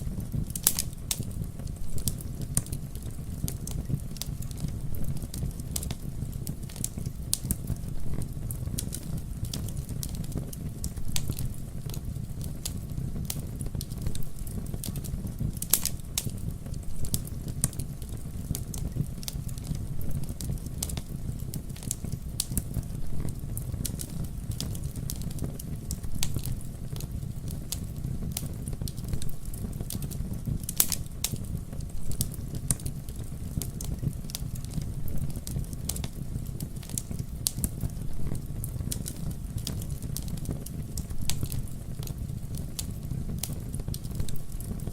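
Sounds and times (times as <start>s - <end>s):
campfire flames rumbling: 0.0s - 44.9s
wood crackling and popping: 0.0s - 44.9s.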